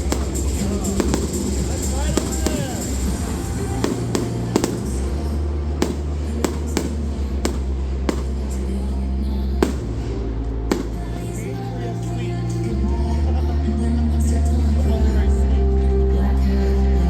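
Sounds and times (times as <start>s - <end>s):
fireworks bangs: 0.0s - 11.6s.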